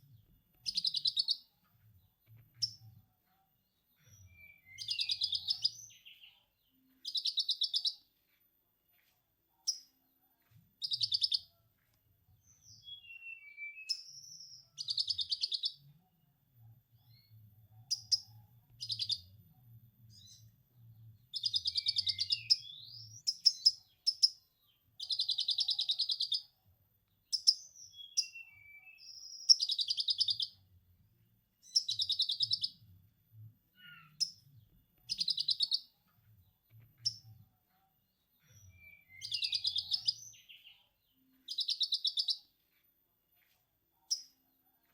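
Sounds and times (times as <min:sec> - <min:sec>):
bird whistled chirps: 0:04.2 - 0:06.2, 0:12.8 - 0:15.7, 0:21.4 - 0:23.7, 0:27.4 - 0:30.5, 0:38.7 - 0:40.7.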